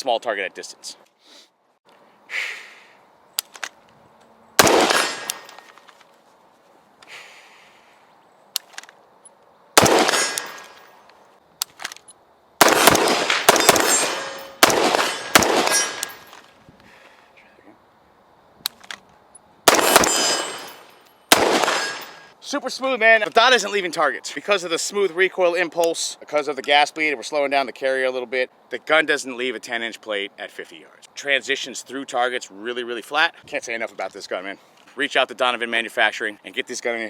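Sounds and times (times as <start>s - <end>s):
rifle gunshots: 4.6s - 5.6s, 9.8s - 10.8s, 12.6s - 16.2s, 19.7s - 22.3s.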